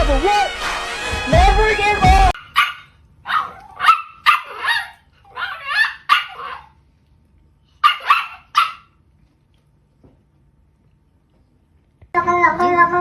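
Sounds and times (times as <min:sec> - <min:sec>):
dog barking: 0:02.4 - 0:06.8, 0:07.8 - 0:09.0.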